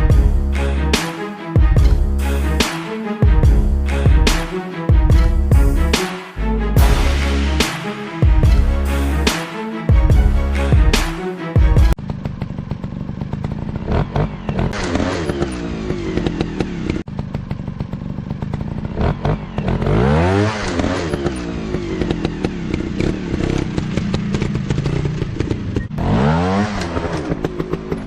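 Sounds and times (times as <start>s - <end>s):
background music: 0.0s - 12.0s
dirt bike engines revving: 18.0s - 28.0s.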